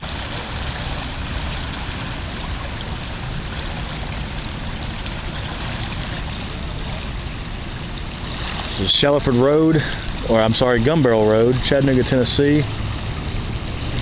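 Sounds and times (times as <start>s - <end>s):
floodwater rushing over road: 0.0s - 14.0s
low rumble: 0.0s - 14.0s.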